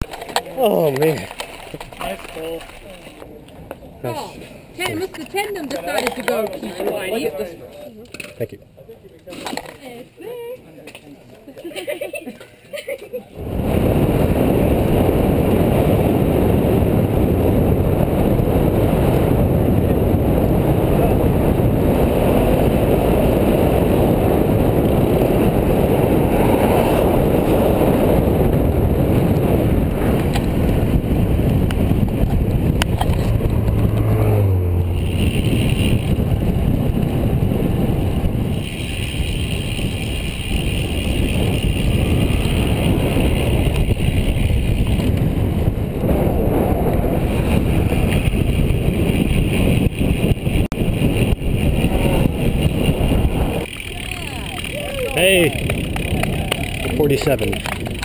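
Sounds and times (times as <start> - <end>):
road noise: 0.0 - 12.2, 13.3 - 58.0
low hum: 13.4 - 57.0
wind buffeting microphone: 13.4 - 58.0.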